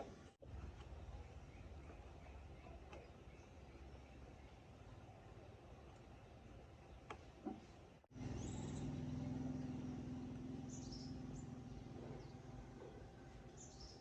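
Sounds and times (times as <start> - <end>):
engine running with low hum: 7.5 - 14.0
bird chirps: 8.2 - 14.0.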